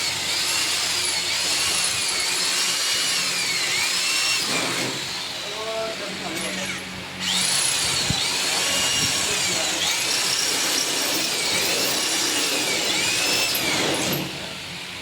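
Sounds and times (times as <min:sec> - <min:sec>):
power tool whining: 0:00.0 - 0:15.0.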